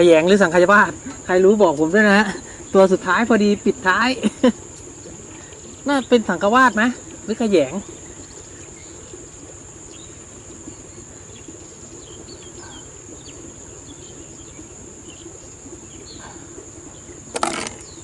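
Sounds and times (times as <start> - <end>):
faint bird chirps: 4.9 - 18.0
loud rustle or knock: 17.3 - 17.9.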